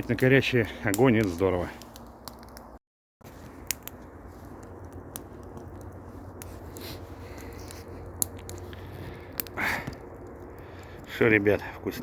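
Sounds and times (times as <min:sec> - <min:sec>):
campfire crackling: 0:00.0 - 0:12.0
steady low hum: 0:03.3 - 0:12.0.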